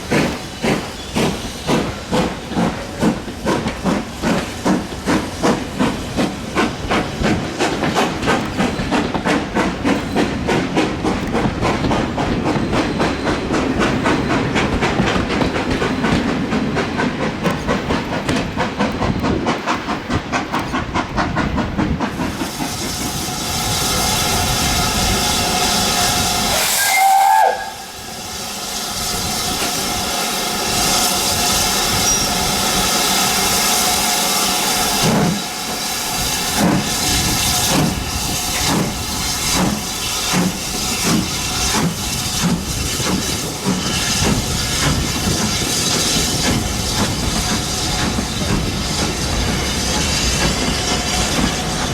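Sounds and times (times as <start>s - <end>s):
steam hissing: 0.0s - 51.9s
steam locomotive chuffing: 0.0s - 51.9s
steam whistle: 25.5s - 28.2s.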